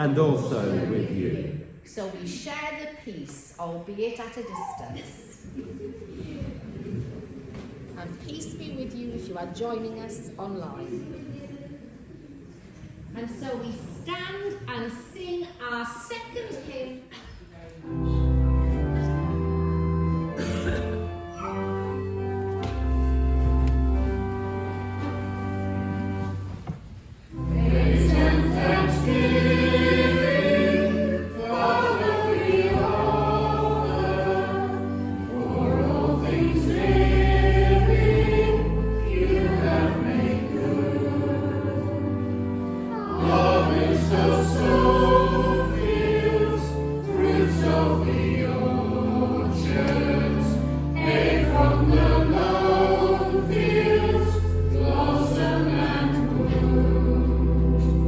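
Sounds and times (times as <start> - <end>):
choir and congregation singing hymn: 0.0 - 1.8, 27.3 - 58.0
church organ: 17.8 - 26.6, 27.3 - 58.0.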